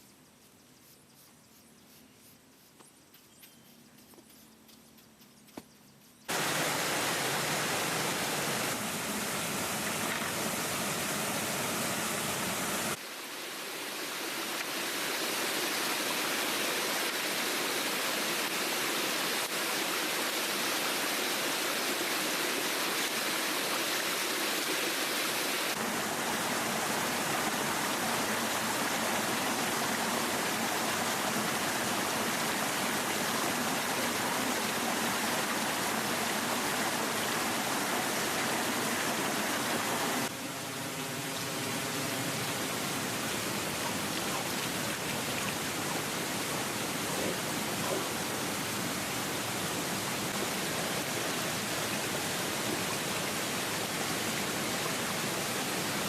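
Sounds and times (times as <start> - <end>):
waterfall rushing: 6.3 - 40.3.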